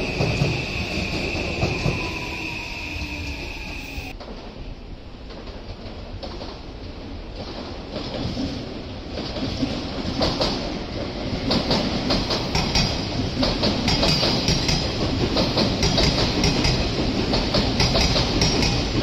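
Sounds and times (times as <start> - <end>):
train running rumble: 3.1 - 19.0
wheels clicking over rail joints: 11.4 - 19.0.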